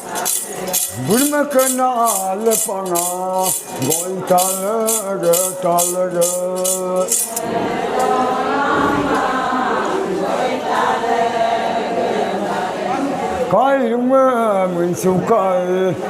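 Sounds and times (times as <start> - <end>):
rattle shaking: 0.0 - 7.4
group of voices singing: 0.0 - 16.0.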